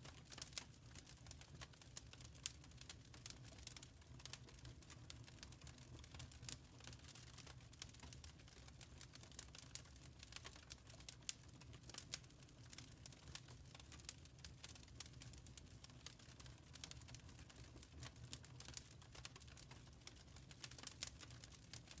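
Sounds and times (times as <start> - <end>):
faint fireplace fire crackling: 0.0 - 22.0.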